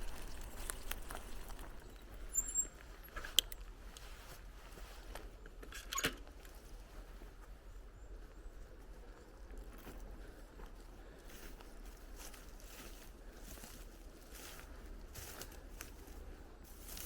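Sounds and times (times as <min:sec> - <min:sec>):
bicycle rattle: 0:00.0 - 0:02.7
bicycle tyre and ground noise: 0:00.0 - 0:17.0.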